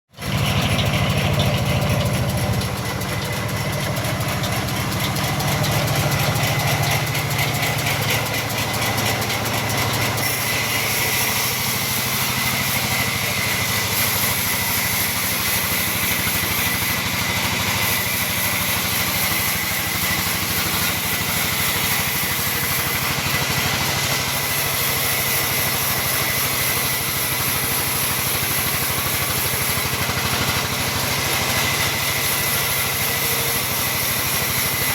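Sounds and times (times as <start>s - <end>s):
sawmill machine drone and whine: 0.2s - 34.9s.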